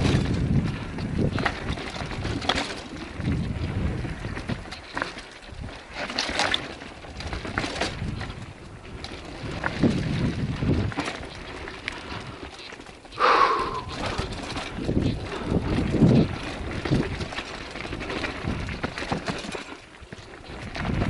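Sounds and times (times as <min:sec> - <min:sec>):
wind on microphone: 0:00.0 - 0:04.7, 0:07.2 - 0:12.4, 0:13.2 - 0:19.3, 0:20.5 - 0:21.0
bike rattles and knocks: 0:00.0 - 0:21.0
bike tyres crunching on dirt: 0:00.0 - 0:21.0.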